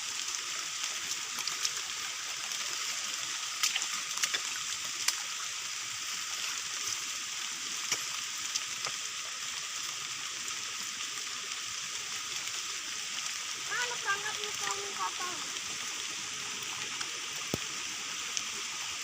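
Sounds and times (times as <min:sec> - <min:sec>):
steady rain hiss: 0:00.0 - 0:19.0
raindrops ticking nearby: 0:03.5 - 0:05.4, 0:07.8 - 0:09.1, 0:13.2 - 0:18.6.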